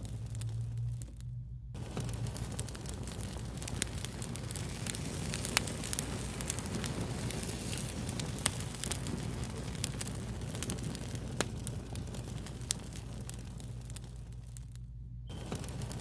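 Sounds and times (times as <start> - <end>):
low rumble of flame: 0.0 - 16.0
wood fire crackling and popping: 0.0 - 16.0.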